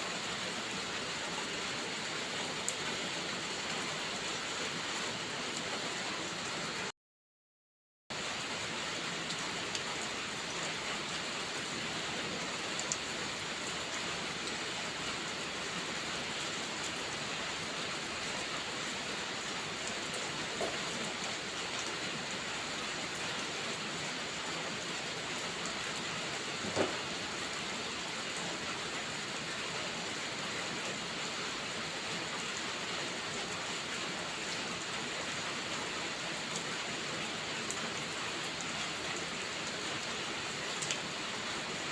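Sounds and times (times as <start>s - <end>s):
heavy rain hissing: 16.6s - 29.1s.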